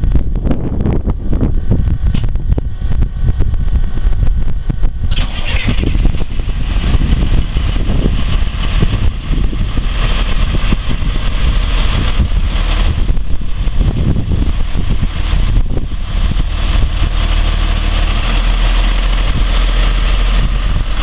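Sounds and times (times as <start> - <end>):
diesel engine rumbling: 0.0 - 21.0
high beep: 2.2 - 5.1.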